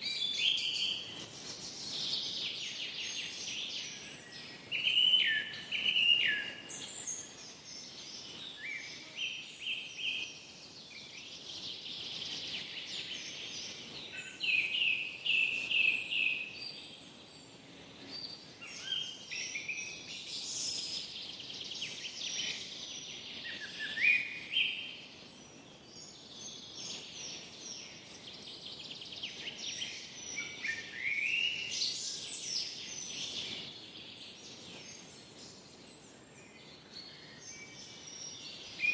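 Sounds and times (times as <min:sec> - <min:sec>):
birds chirping and trilling: 0:00.0 - 0:38.9
soft steady hiss: 0:00.0 - 0:38.9.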